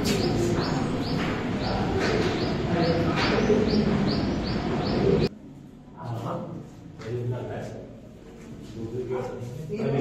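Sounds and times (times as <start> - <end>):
small bird chirping: 0.0 - 5.3
low background murmur: 0.0 - 10.0.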